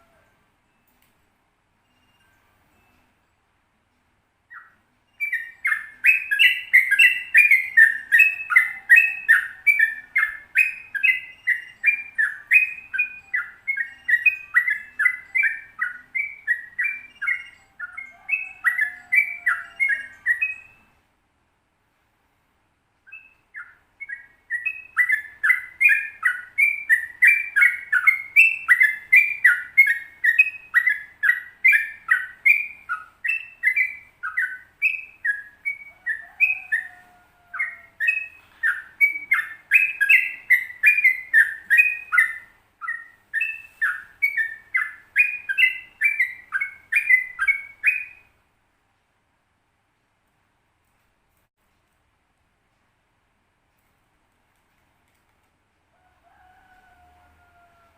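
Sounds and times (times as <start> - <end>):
bulbul singing chattering notes: 4.5 - 20.9.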